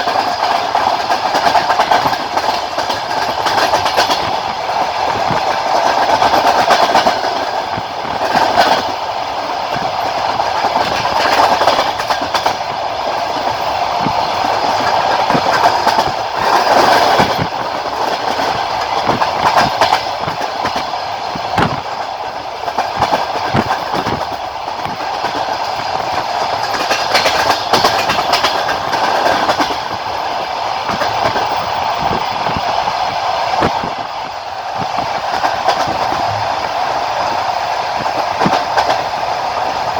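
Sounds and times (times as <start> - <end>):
train wheels clattering over rail joints: 0.0 - 39.9.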